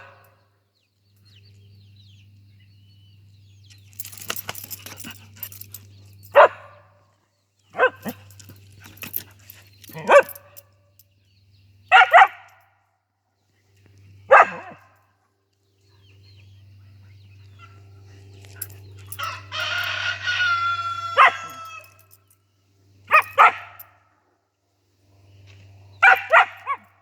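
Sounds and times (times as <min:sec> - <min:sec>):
dog barking: 0:00.0 - 0:00.4, 0:06.3 - 0:06.9, 0:07.8 - 0:08.3, 0:09.9 - 0:10.6, 0:11.9 - 0:12.6, 0:14.3 - 0:15.0, 0:21.1 - 0:21.6, 0:23.1 - 0:24.0, 0:26.0 - 0:27.0
rooster crowing: 0:19.2 - 0:22.1.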